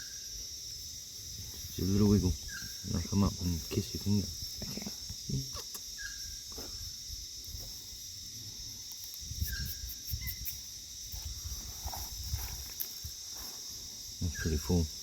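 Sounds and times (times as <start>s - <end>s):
insects chirring: 0.0s - 15.0s
faint chirps: 1.6s - 4.0s, 4.6s - 7.0s, 13.3s - 15.0s.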